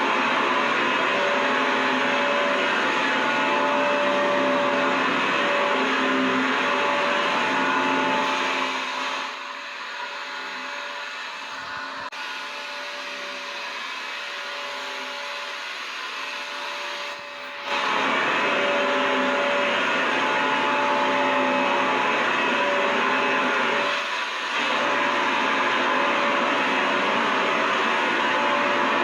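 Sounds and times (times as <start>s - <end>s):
vacuum cleaner running: 0.0s - 29.0s.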